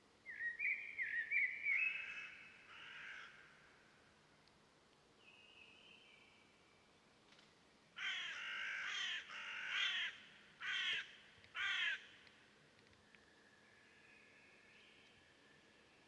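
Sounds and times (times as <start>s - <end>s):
bird cawing: 1.8s - 3.7s, 8.0s - 12.2s.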